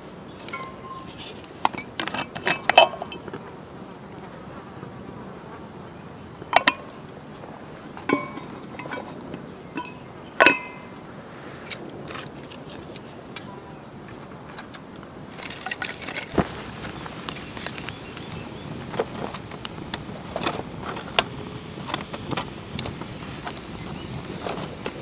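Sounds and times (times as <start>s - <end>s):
metal utensil clinking on pan: 0.5s - 3.3s, 6.5s - 6.9s, 8.1s - 9.2s, 9.8s - 10.9s.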